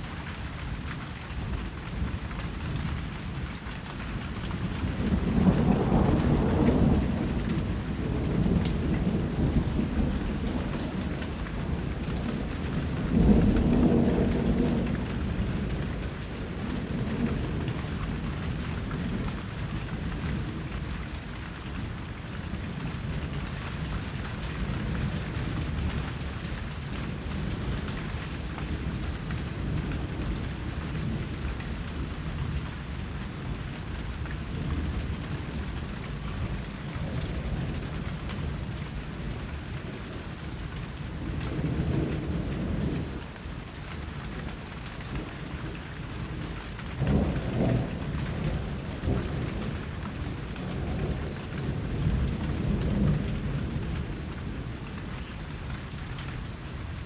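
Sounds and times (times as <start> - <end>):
steady rain falling: 0.0 - 57.0
low rolling thunder: 0.3 - 57.0.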